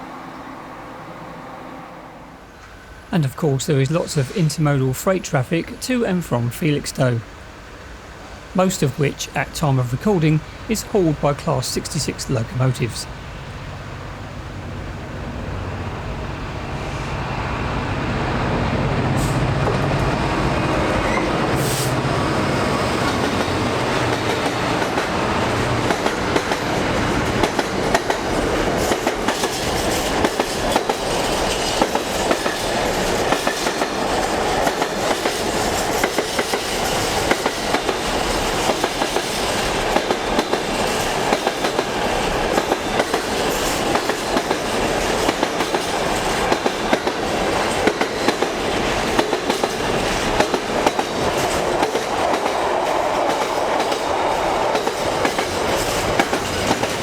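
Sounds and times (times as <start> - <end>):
train wheels clickety-clack: 19.2 - 57.0.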